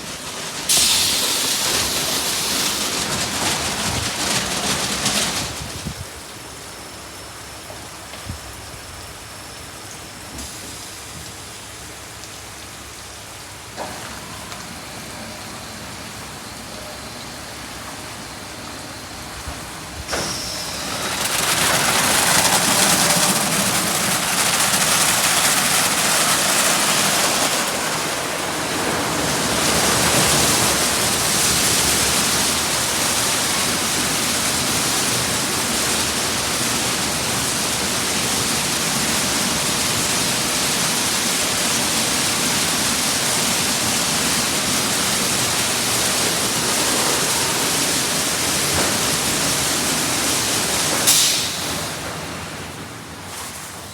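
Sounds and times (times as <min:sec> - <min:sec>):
water spray hitting a car: 0:00.2 - 0:05.7, 0:20.1 - 0:52.0.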